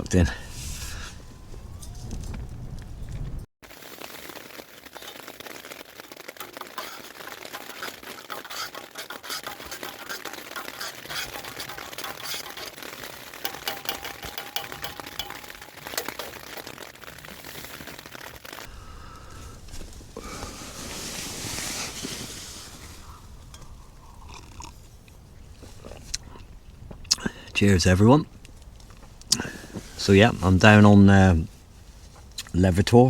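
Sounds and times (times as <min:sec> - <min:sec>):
packaging rustling: 0:03.6 - 0:18.7
spoon scraping in food pouch: 0:03.8 - 0:18.7.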